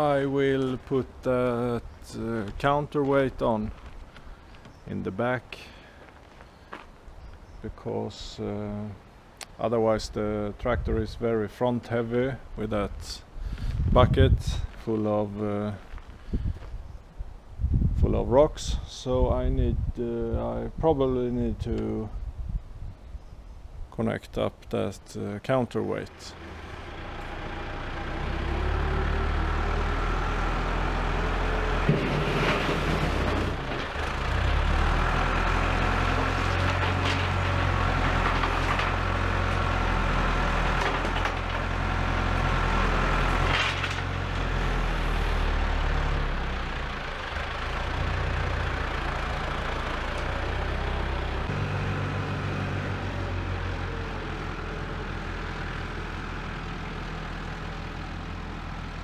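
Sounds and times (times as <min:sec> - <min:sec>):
heavy diesel engine running: 0:26.0 - 0:59.0.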